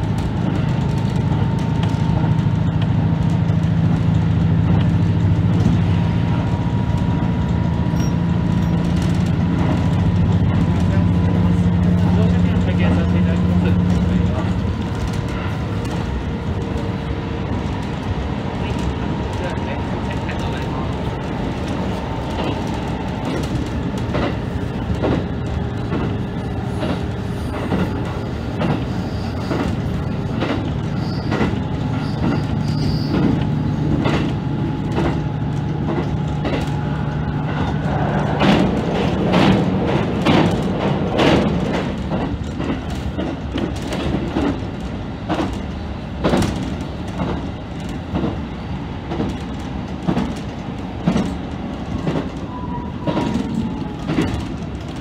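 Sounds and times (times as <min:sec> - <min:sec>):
railcar engine and running hum: 0:00.0 - 0:55.0
wheels clicking over rail joints: 0:00.0 - 0:55.0.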